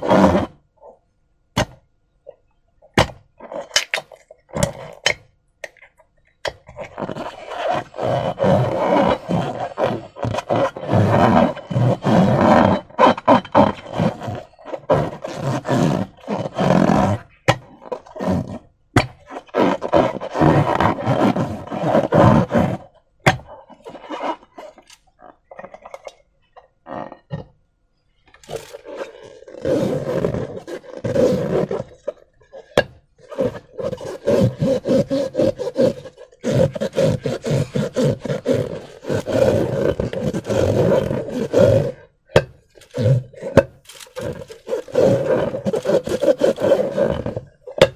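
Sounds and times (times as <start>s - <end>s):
sticky clicks and crackles: 43.8s - 46.7s.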